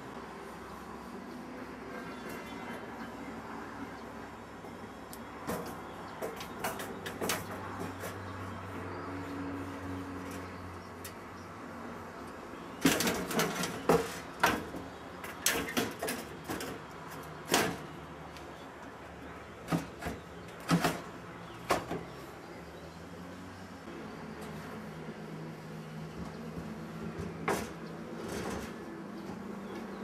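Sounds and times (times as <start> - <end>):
sharp knocks and clatters: 5.4 - 8.3, 12.7 - 18.0, 19.6 - 22.1, 26.1 - 30.0.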